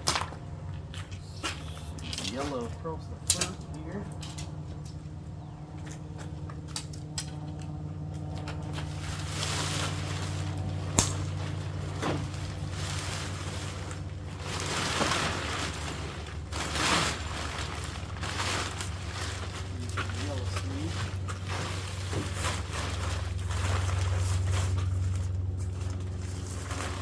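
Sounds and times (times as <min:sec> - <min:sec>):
steady low hum: 0:00.0 - 0:27.0
tent fabric rustling: 0:08.8 - 0:27.0.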